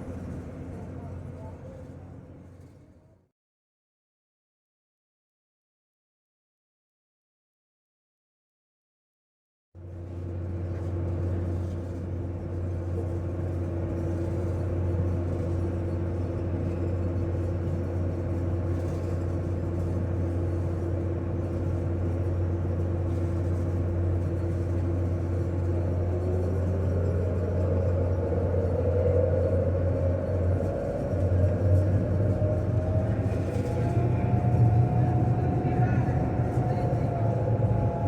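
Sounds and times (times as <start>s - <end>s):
vehicle engine rumble: 9.9s - 38.0s
droning hum: 10.2s - 38.0s.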